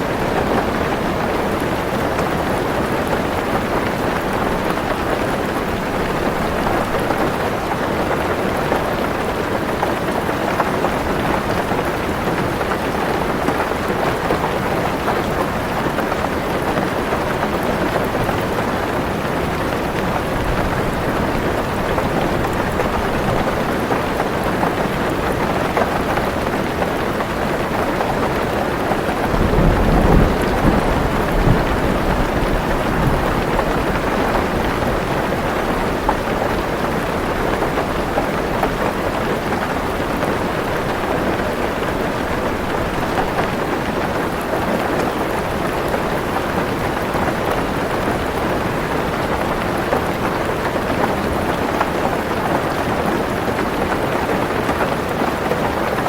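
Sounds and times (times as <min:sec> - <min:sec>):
heavy rain on car roof: 0:00.0 - 0:56.0
low thunder rumble: 0:29.2 - 0:35.0.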